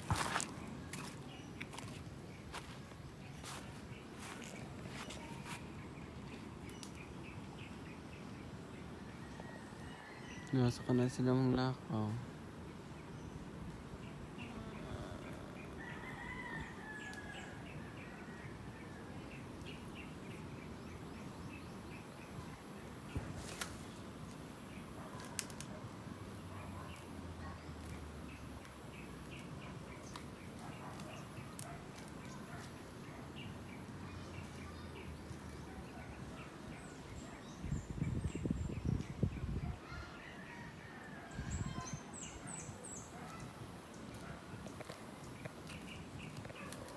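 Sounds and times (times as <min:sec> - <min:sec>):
birds chirping: 0:00.0 - 0:08.9, 0:10.0 - 0:18.1, 0:19.6 - 0:46.9
outdoor background: 0:00.0 - 0:46.9
rooster crowing: 0:14.6 - 0:17.7.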